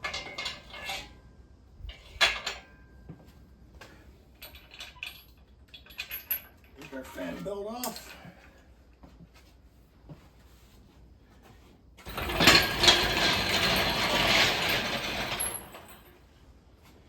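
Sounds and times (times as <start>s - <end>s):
power tool rattling on bolt: 12.0s - 16.0s.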